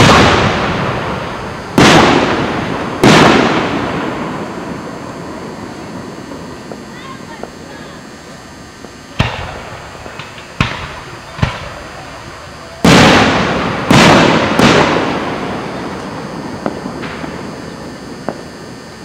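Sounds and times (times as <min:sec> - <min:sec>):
firework shells bursting: 0:00.0 - 0:19.0
loud rumbling firework booms: 0:00.0 - 0:19.0.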